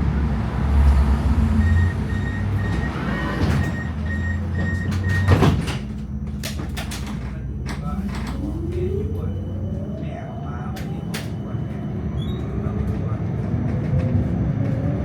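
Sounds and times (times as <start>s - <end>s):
tram motor whine: 0.0s - 15.0s
door warning beeps: 1.6s - 6.4s
doors sliding shut: 2.3s - 6.0s.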